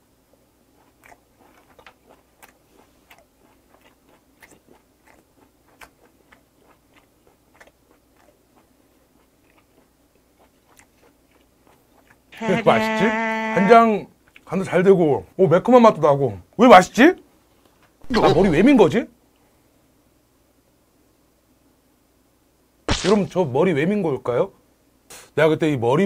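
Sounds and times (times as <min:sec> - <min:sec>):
man chewing with wet clicks: 0:00.3 - 0:12.4, 0:14.2 - 0:14.5.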